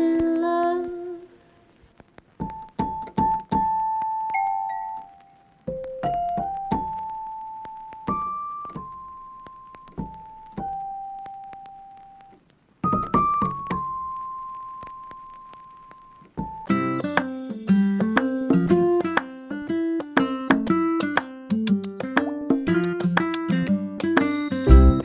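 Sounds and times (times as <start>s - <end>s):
slow piano melody: 2.9s - 11.5s.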